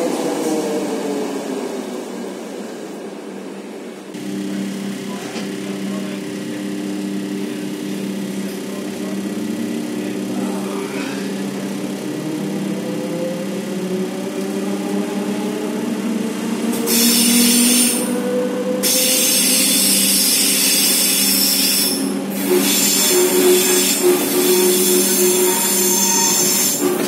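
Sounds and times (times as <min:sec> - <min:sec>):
wheels rushing on rails: 0:00.0 - 0:27.0
traction motor whine: 0:04.1 - 0:27.0
wavering squeal: 0:18.8 - 0:27.0.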